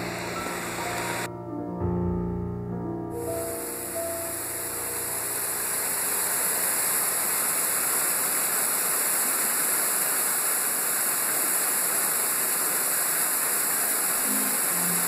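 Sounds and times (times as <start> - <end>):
small waterfall splashing: 3.4 - 15.0.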